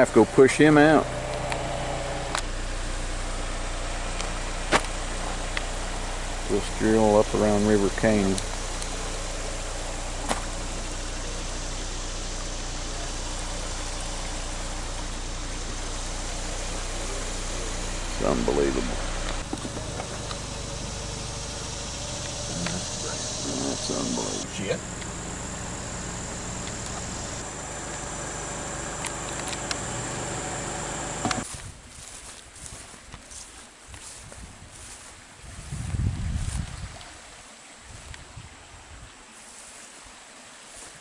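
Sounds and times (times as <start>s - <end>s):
high whine: 0.0s - 31.4s
vehicle interior hiss: 0.0s - 31.5s
low engine hum: 0.0s - 31.6s
quiet outdoor sound: 0.0s - 41.0s
clicks: 26.4s - 27.5s, 28.9s - 31.4s.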